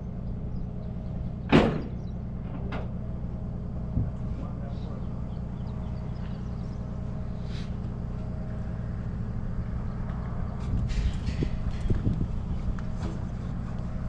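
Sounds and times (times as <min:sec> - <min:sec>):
truck engine idling: 0:00.0 - 0:14.0
light clanks and rattles: 0:00.9 - 0:06.8, 0:09.6 - 0:14.0.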